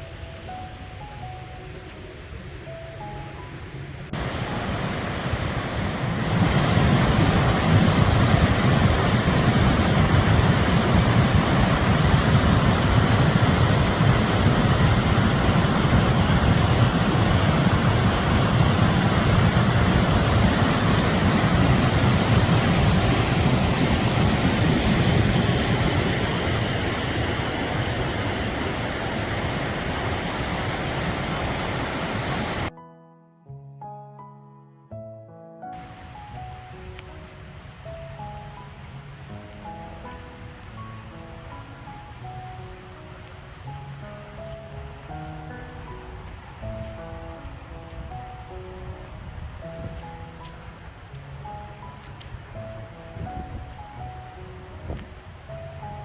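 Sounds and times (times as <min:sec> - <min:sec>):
fast-flowing river rushing: 0:04.2 - 0:32.7, 0:35.8 - 0:38.9.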